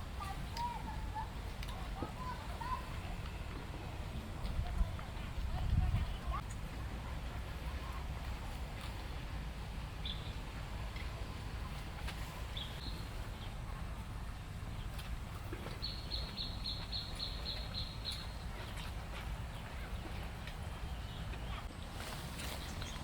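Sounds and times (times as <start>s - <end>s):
small bird chirping: 15.7s - 19.0s.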